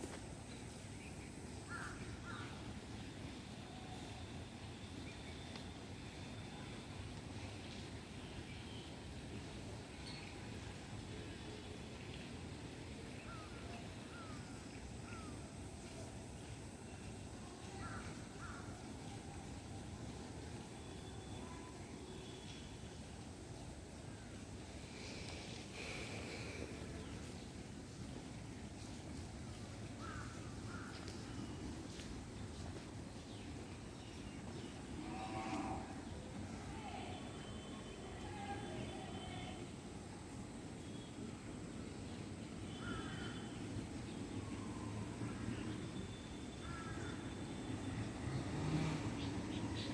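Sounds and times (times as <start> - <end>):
faint bird calls: 30.0 - 32.0, 42.7 - 43.8, 44.4 - 48.0
distant animal call: 35.0 - 36.2.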